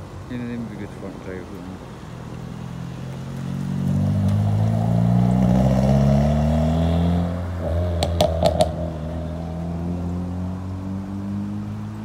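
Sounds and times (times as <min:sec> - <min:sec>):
car engine revving: 0:02.4 - 0:12.0.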